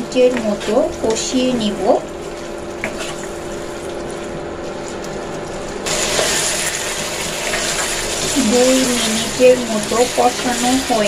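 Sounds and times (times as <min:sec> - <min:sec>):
steady low hum: 0:00.0 - 0:11.0
potatoes sizzling in a pan: 0:05.8 - 0:11.0.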